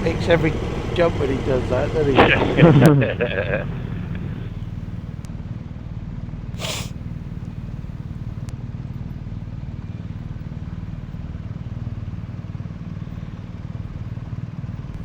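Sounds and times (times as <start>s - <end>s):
motorcycle engine running: 0.0s - 5.3s
brief hiss: 6.6s - 7.0s.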